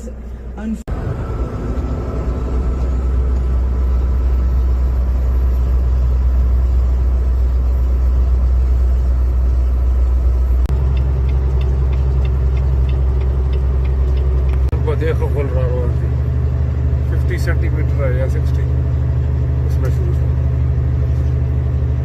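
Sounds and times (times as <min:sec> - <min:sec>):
truck rumbling from inside cab: 0:00.0 - 0:22.0
light regular ticking: 0:10.6 - 0:15.1.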